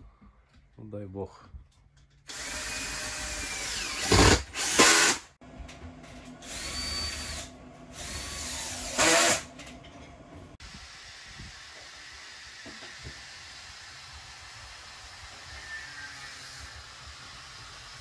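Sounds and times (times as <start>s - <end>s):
power drill whining: 2.3s - 5.2s, 6.4s - 9.5s.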